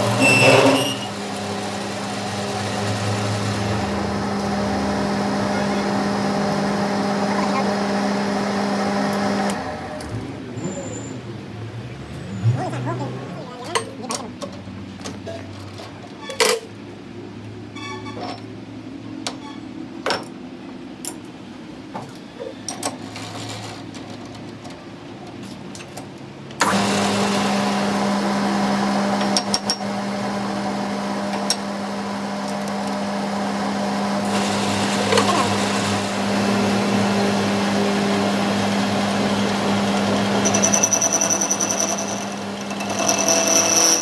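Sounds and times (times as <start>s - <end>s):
machine humming: 0.0s - 13.7s, 26.6s - 44.0s.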